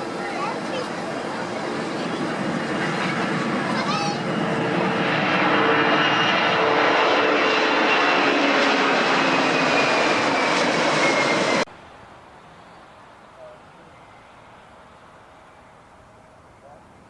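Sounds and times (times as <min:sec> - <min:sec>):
airplane engines passing: 0:00.0 - 0:17.0
faint background noise: 0:11.7 - 0:17.0.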